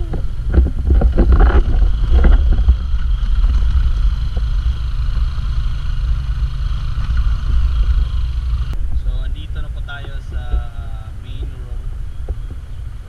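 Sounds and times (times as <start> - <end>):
scooter engine running: 0.0 - 8.8
wind buffeting microphone: 0.0 - 13.0.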